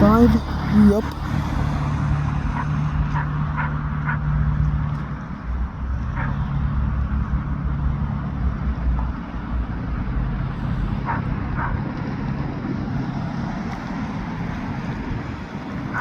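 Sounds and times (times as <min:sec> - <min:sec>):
diesel locomotives idling: 0:00.0 - 0:01.6.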